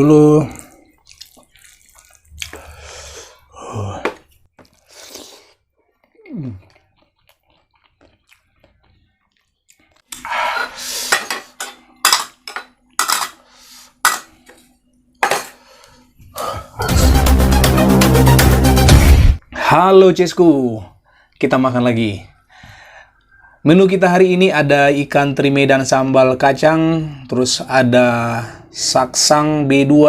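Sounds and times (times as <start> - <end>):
metal utensils scraping dishes: 11.1 - 13.4, 15.2 - 15.6.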